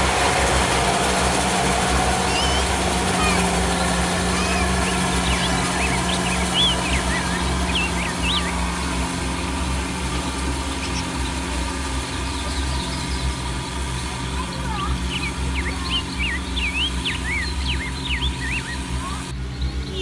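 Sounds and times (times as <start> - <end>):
birds chirping: 0.0 - 20.0
diesel engine running: 0.0 - 20.0.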